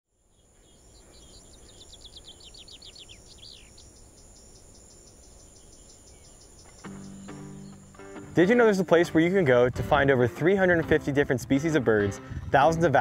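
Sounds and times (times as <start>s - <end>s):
insect chirping: 0.1s - 8.4s
bird singing descending notes: 0.3s - 9.4s.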